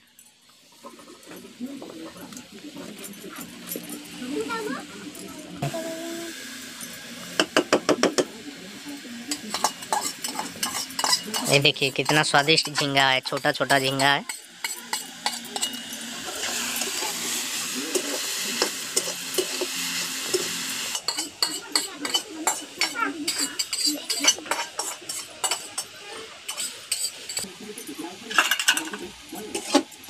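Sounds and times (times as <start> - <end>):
shrimp sizzling in pan: 0.0 - 30.0
metal spatula scraping pan: 9.5 - 17.3, 17.9 - 25.9.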